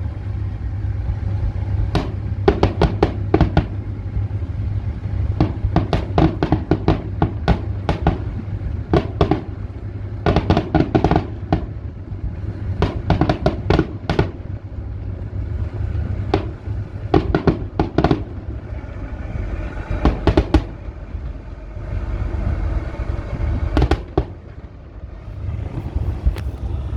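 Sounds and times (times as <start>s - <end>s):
steady low rumble: 0.0s - 26.9s
fireworks banging and crackling: 1.9s - 4.0s, 5.3s - 14.6s, 15.3s - 18.5s, 20.0s - 20.8s, 23.8s - 24.6s.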